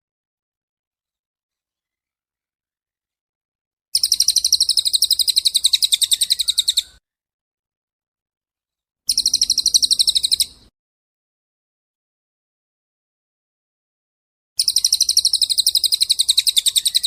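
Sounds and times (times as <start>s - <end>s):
songbird singing a rapid trill: 4.0s - 7.0s, 9.1s - 10.7s, 14.6s - 17.0s.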